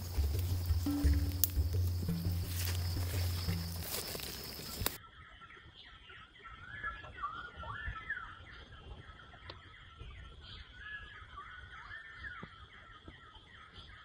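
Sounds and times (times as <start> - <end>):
steady high buzz: 0.0 - 5.0
songbirds chirping and whistling: 0.0 - 14.0.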